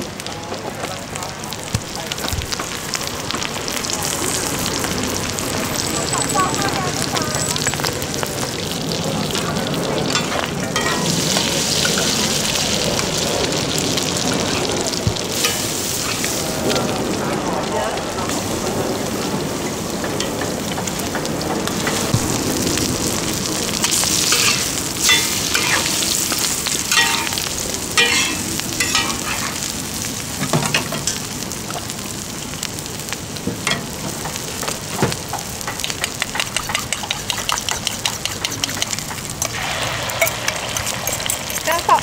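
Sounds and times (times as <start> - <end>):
omelet sizzling in oil: 0.0 - 42.0
metal utensils scraping a pan: 10.1 - 12.2, 15.3 - 16.4, 23.8 - 29.6, 35.7 - 42.0.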